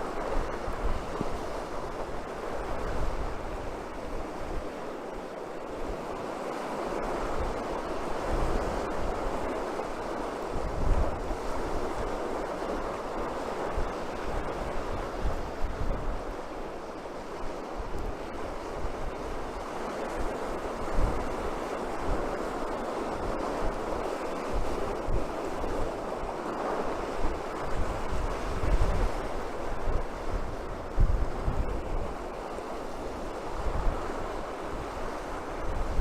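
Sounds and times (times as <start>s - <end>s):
surf breaking on shore: 0.0s - 36.0s
wind on microphone: 0.0s - 36.0s.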